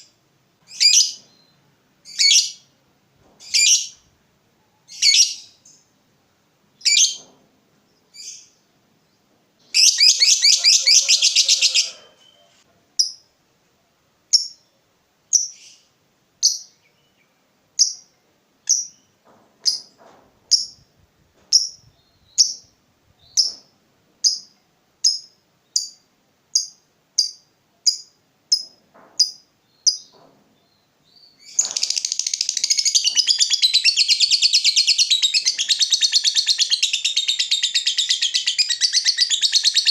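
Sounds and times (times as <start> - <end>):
lovebird chirping and chattering: 0.7 - 2.6, 3.4 - 4.0, 4.9 - 5.8, 6.8 - 7.3, 9.6 - 13.2, 14.3 - 14.7, 15.3 - 17.2, 17.8 - 18.1, 18.7 - 19.9, 20.5 - 20.8, 21.5 - 23.6, 24.2 - 30.2, 31.2 - 39.9.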